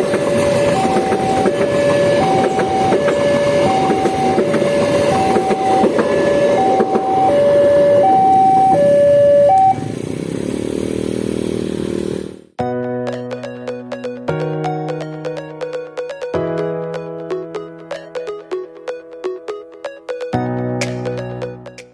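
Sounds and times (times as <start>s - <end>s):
level crossing two-tone alarm: 0.0s - 9.8s
passing train rumble: 0.0s - 12.4s.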